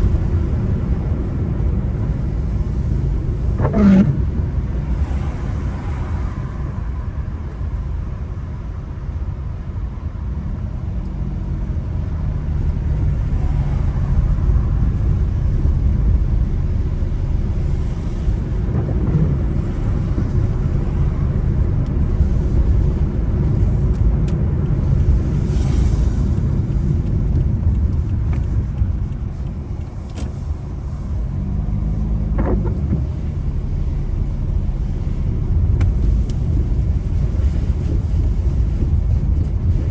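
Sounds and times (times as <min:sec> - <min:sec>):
car driving on wet road: 0:00.0 - 0:39.9.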